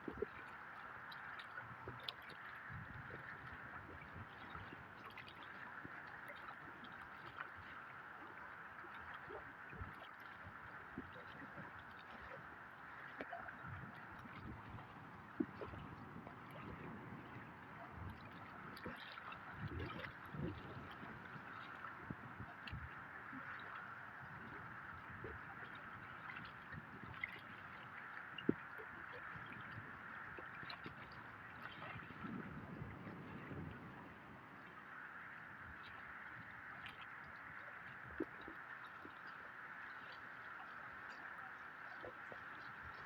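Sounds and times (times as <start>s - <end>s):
faint rushing water: 0.0s - 43.0s
water gurgling and splashing: 0.0s - 43.0s.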